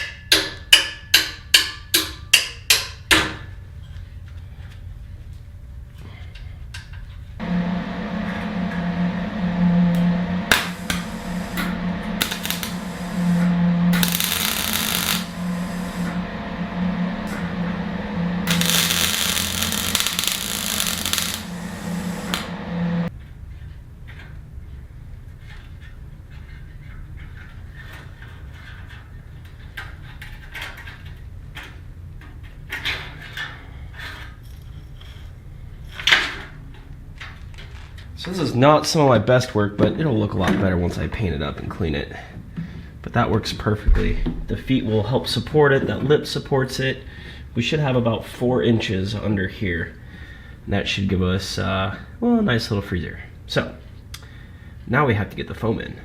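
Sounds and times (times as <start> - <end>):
power tool humming: 7.4 - 23.1
harsh hiss: 10.5 - 16.1, 18.4 - 22.5.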